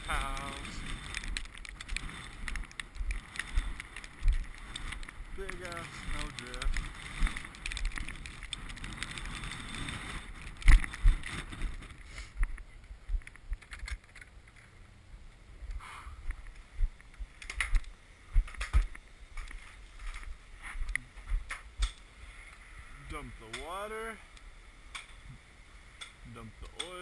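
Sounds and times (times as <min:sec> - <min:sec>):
wind buffeting microphone: 0:00.0 - 0:14.0
knocks and rustles: 0:00.2 - 0:14.8, 0:16.3 - 0:22.0.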